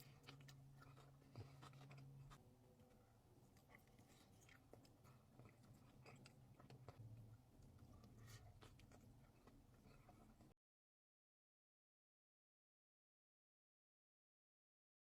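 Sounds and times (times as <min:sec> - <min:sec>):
low steady hum: 0:00.0 - 0:10.5
chewing and crunching: 0:00.0 - 0:10.6.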